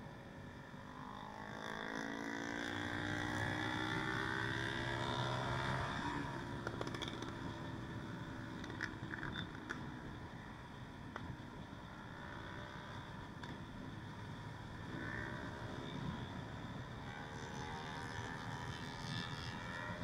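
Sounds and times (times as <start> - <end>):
motorcycle engine revving: 0.9 - 7.5.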